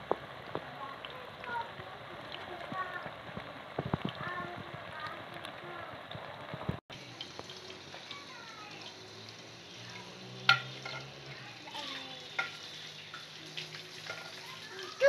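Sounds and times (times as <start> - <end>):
food sizzling in hot oil: 0.0 - 15.0
metal ladle clinking on pan: 10.5 - 11.1, 12.3 - 13.3, 14.0 - 14.4.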